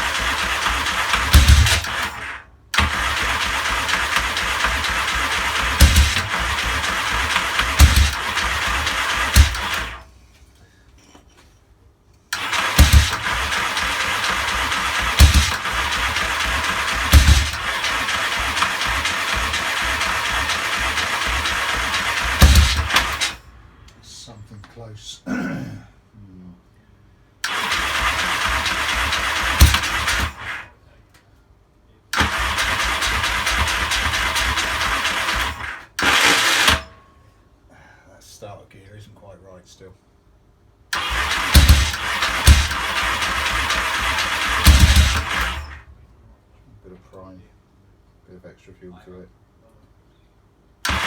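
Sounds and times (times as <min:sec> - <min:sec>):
motorcycle electric starter cranking: 0:00.0 - 0:10.1, 0:12.3 - 0:23.5, 0:27.4 - 0:30.7, 0:32.2 - 0:37.0, 0:40.9 - 0:45.9, 0:50.8 - 0:51.0.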